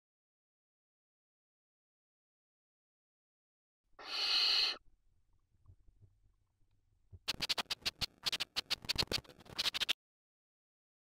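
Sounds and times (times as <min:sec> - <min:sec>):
owl hissing screech: 0:04.0 - 0:04.8
scratching and scuffling in nest: 0:07.2 - 0:10.0.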